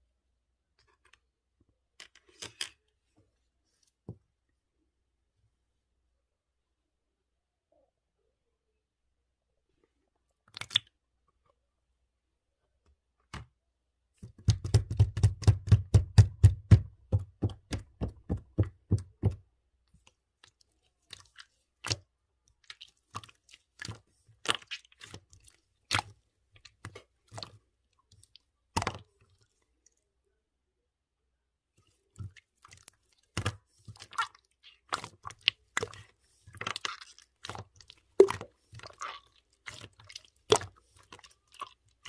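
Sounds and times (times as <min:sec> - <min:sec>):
slime squished by hand: 0:20.0 - 0:29.6, 0:31.9 - 0:42.0.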